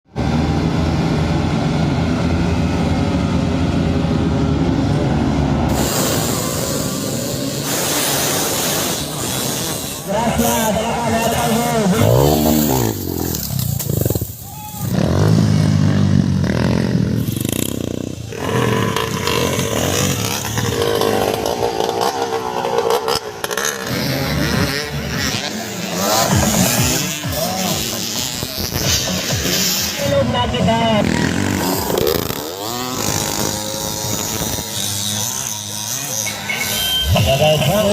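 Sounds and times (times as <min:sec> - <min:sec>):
motorcycle engine rumbling: 0:00.0 - 0:37.9
hiss: 0:05.7 - 0:10.0.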